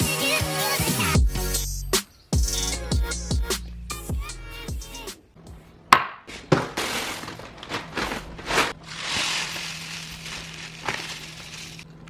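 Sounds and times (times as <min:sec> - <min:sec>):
rustling: 0:06.3 - 0:12.0.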